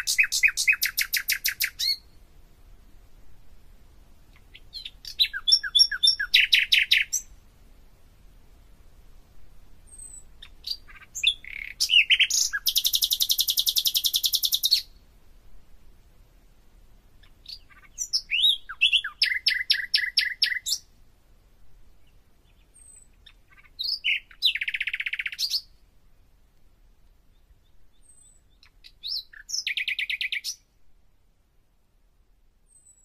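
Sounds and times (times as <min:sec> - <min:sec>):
bird singing with trills: 0:00.0 - 0:02.1, 0:04.4 - 0:07.3, 0:09.9 - 0:15.0, 0:17.2 - 0:20.9, 0:22.0 - 0:25.7, 0:27.3 - 0:30.7.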